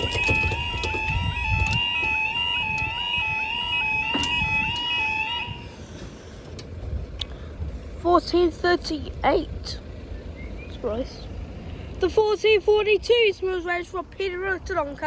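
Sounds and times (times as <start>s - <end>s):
two-tone warning alarm: 0.0s - 5.8s.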